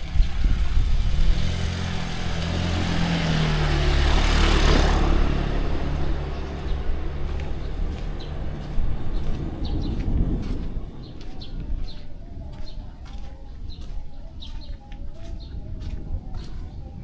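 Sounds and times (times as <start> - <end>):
tyres hissing on wet road: 0.0 - 6.4
vehicle engine humming: 0.0 - 17.0.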